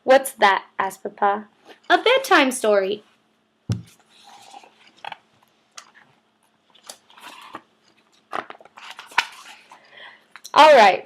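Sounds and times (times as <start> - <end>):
soft knock: 3.7 - 3.9.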